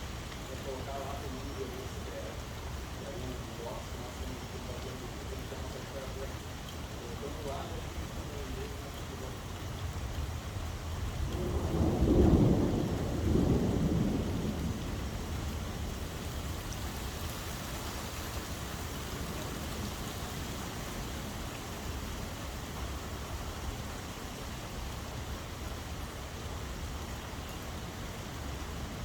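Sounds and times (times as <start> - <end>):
steady rain: 0.0 - 29.0
thunder rolling: 11.2 - 16.6.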